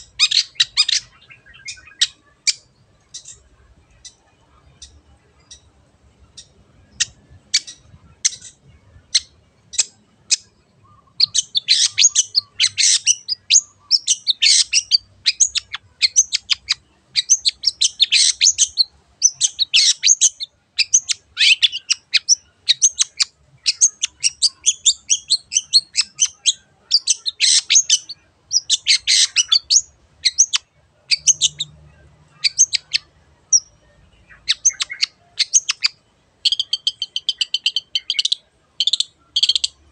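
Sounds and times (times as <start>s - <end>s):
shrike singing: 0.0s - 39.9s.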